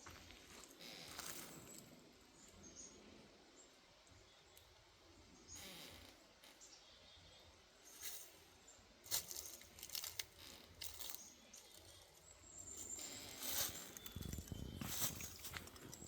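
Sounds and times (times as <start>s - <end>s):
dry rustling and crackling: 9.0s - 16.0s.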